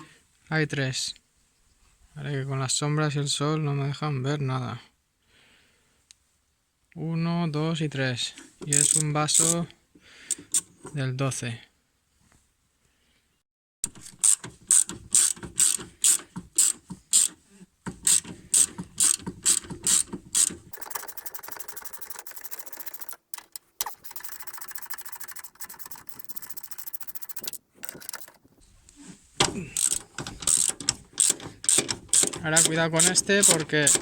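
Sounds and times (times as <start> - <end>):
ratchet wrench clicking: 8.7 - 9.6, 13.9 - 28.4, 29.8 - 34.0.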